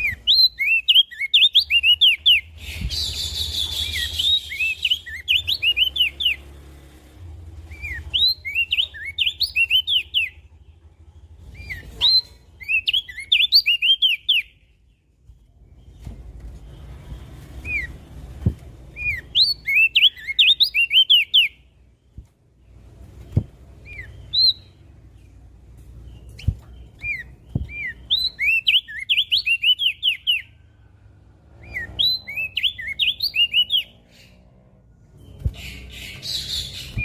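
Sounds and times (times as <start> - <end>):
bird singing high chirping notes: 0.0 - 6.7, 7.6 - 10.7, 11.4 - 15.0, 18.8 - 21.8, 23.8 - 25.4, 26.0 - 30.8, 31.4 - 34.5.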